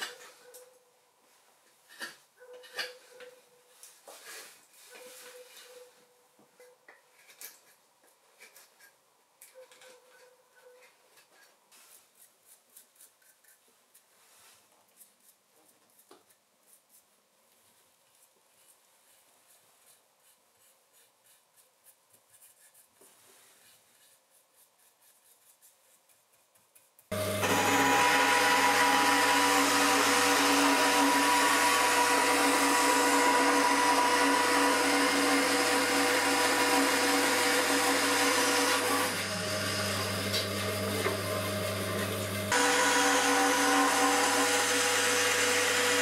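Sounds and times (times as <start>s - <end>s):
band saw motor hum: 27.1s - 46.0s.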